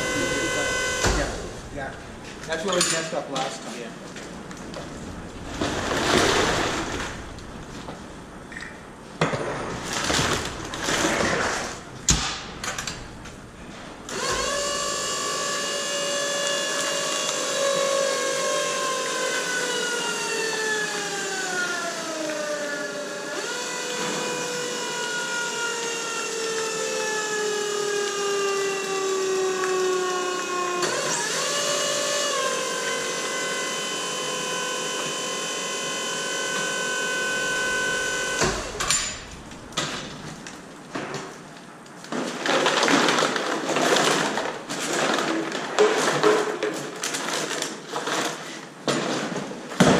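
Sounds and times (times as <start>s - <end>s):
electric motor whining: 0.0s - 1.7s, 14.1s - 40.2s
crackles and knocks: 4.0s - 8.5s.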